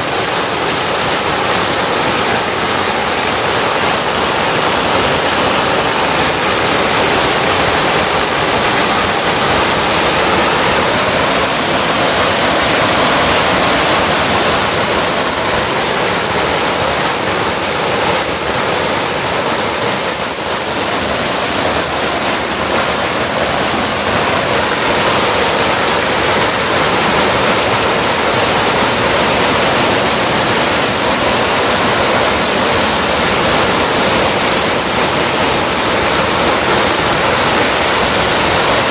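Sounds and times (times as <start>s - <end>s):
firecrackers crackling: 0.0s - 38.9s.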